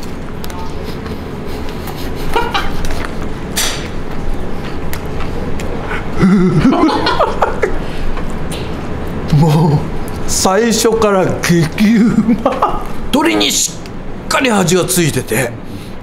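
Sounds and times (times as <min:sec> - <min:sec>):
man humming with pleasure: 0:05.9 - 0:06.8.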